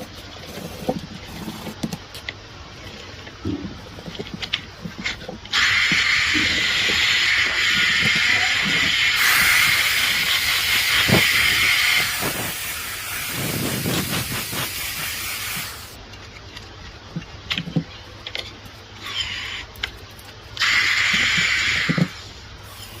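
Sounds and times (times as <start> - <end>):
loud steady hiss: 2.4 - 16.0, 18.9 - 23.0.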